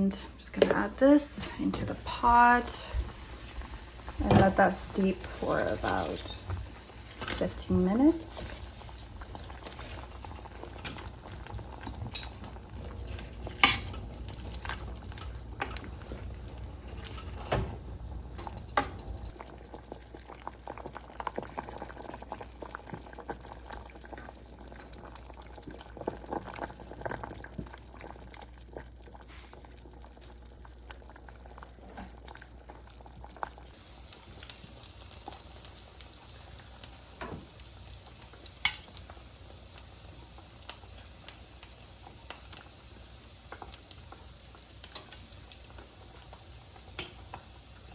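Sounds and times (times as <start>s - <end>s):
pot of broth simmering: 1.1s - 47.9s
utensils clinking on cookware: 11.8s - 19.3s.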